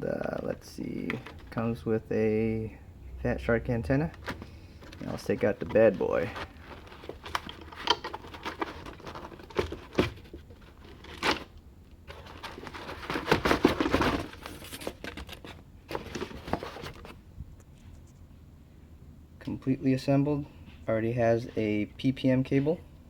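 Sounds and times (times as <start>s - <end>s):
plastic packaging crinkling: 4.4s - 17.1s.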